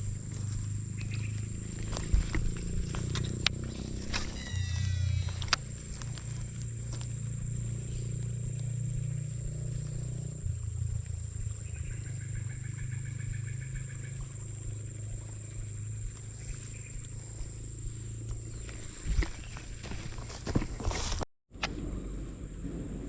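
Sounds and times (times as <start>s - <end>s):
high-pitched drone: 0.0s - 14.4s
pulsed animal call: 0.0s - 18.6s
low rumble: 0.0s - 20.6s.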